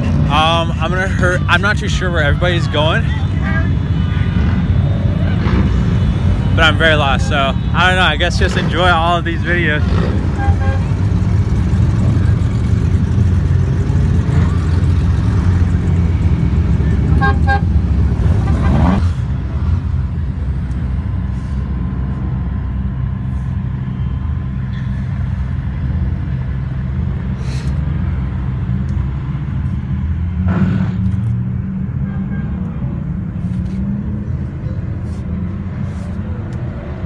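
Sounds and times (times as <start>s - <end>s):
car engine running: 8.0s - 18.7s.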